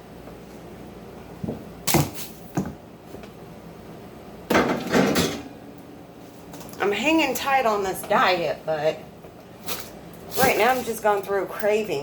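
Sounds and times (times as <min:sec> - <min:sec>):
items clattering and rustling: 0:04.5 - 0:05.5, 0:09.6 - 0:11.4.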